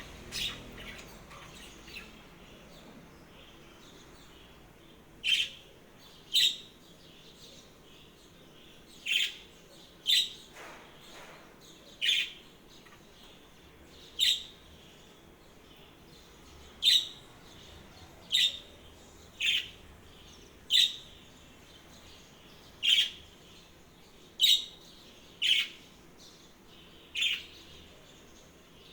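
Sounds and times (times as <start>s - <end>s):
small bird chirping: 0.0s - 28.9s.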